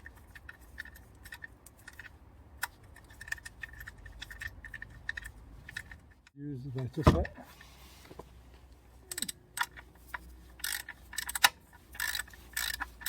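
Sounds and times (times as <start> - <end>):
socket ratchet clicking: 9.1 - 9.9, 10.6 - 13.0.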